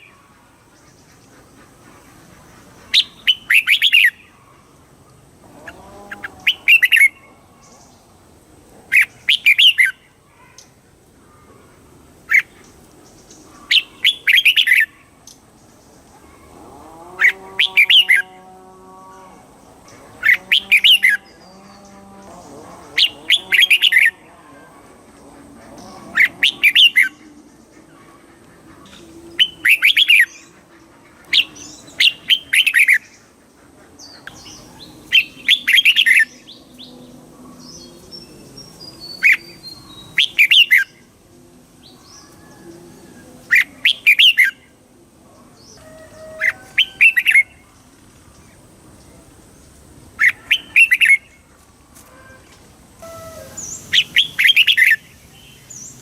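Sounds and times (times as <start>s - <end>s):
bird singing bright phrases: 12.3s - 15.4s, 19.8s - 24.3s, 25.7s - 27.9s, 34.0s - 41.2s, 45.4s - 56.0s.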